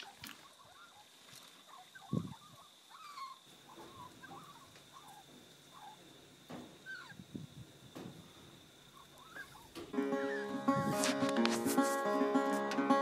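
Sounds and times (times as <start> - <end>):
faint bird chirps and clucks: 0.0 - 8.1, 8.8 - 10.4.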